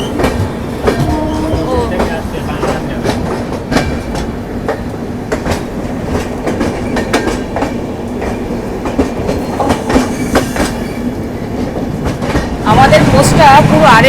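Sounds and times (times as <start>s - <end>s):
train rumbling: 0.0s - 14.0s
wheels clacking over rail joints: 0.0s - 14.0s.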